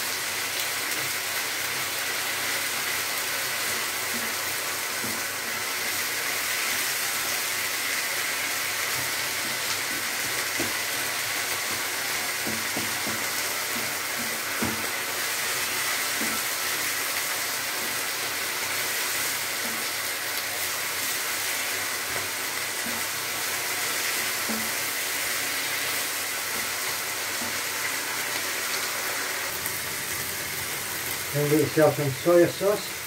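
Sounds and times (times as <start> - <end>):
food sizzling in a frying pan: 0.0 - 33.0
wooden spatula knocking and scraping: 8.9 - 11.0, 11.6 - 14.9, 24.3 - 24.8.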